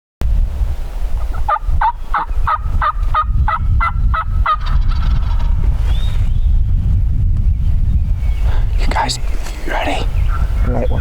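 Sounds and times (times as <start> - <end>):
wind rumble on microphone: 0.2 - 11.0
turkey yelping: 1.4 - 5.5.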